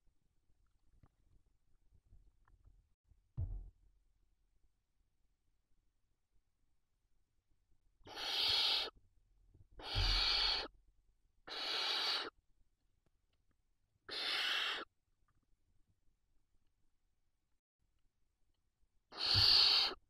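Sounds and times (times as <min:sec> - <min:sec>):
owl chicks rasping hisses: 0:08.1 - 0:09.0, 0:09.8 - 0:10.7, 0:11.4 - 0:12.4, 0:14.1 - 0:14.9, 0:19.1 - 0:20.0.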